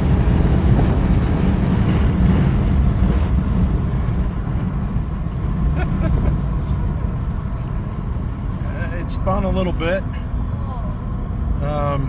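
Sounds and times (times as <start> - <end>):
diesel engine pulling hard: 0.0 - 12.0
wind and road noise: 0.0 - 12.0.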